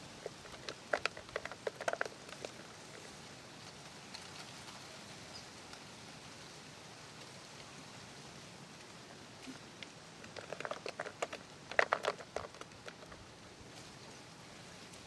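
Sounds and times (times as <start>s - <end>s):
small clicks and taps: 0.2s - 2.6s, 9.8s - 13.2s.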